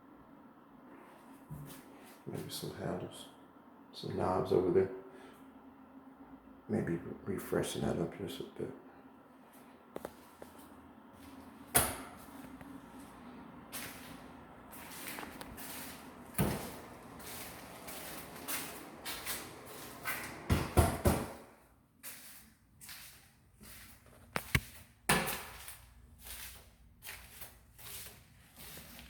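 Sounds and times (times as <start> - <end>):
cabinet doors and drawers knocking: 20.2 - 21.4.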